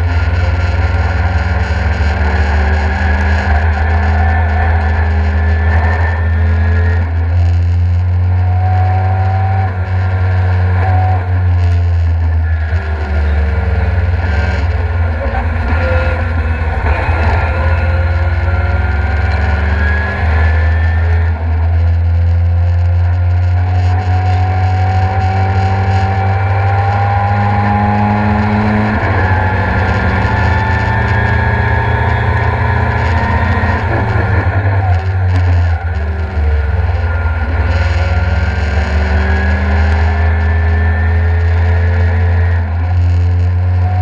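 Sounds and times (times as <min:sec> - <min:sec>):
car engine accelerating hard: 0:00.0 - 0:44.0.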